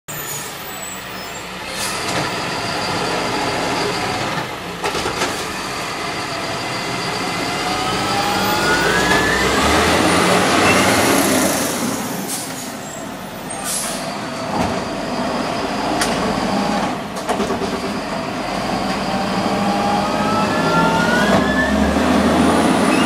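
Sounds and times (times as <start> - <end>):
whine rising in pitch: 6.5 - 10.9, 19.1 - 23.0.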